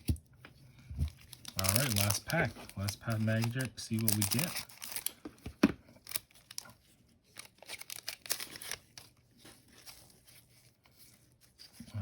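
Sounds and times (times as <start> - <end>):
foil wrapper crinkling: 1.0 - 5.3, 6.0 - 10.4
foil wrapper ripping: 1.2 - 5.2, 7.3 - 9.0.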